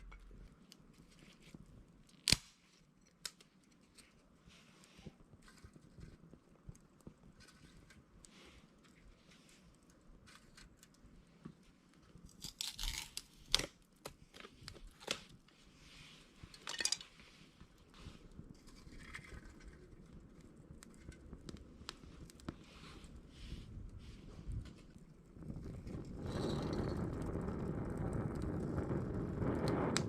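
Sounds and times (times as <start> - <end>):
small fire crunching and rustling: 0.0 - 30.0
sharp cracks of fire: 2.1 - 2.7, 24.2 - 30.0.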